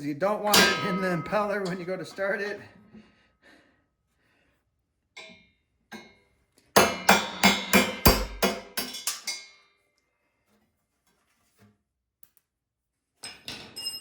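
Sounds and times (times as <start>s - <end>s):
hammer striking steel punch: 0.5s - 1.9s, 6.8s - 9.1s.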